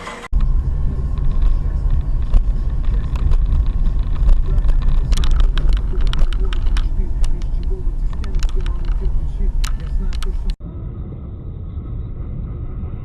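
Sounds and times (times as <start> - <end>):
car engine and road noise: 0.0 - 13.0
light clicks: 1.2 - 10.6.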